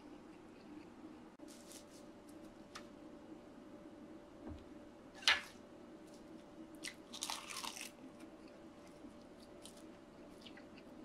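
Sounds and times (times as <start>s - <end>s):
seaweed and rice crunching: 6.8s - 11.0s.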